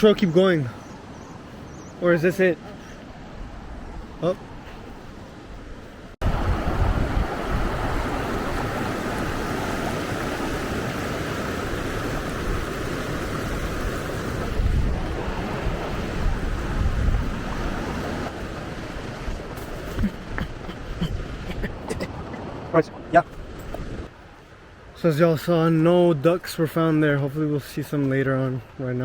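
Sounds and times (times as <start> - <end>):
river water rushing: 0.0 - 20.4, 21.0 - 27.5
wind buffeting microphone: 3.1 - 24.1.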